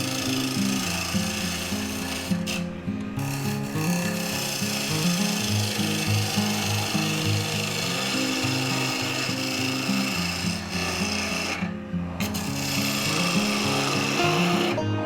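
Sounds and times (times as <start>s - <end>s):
lathe scraping wood: 0.0s - 15.0s
background music with bass line: 14.2s - 15.0s.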